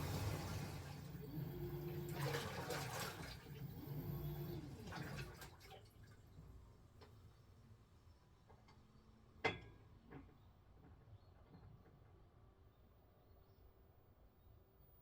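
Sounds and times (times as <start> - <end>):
washing machine churning water: 0.0 - 6.2.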